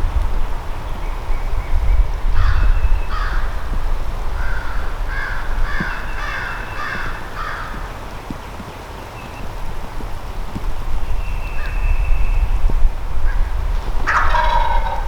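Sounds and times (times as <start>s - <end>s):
crow cawing: 2.4s - 3.5s, 4.4s - 7.9s, 14.1s - 15.0s.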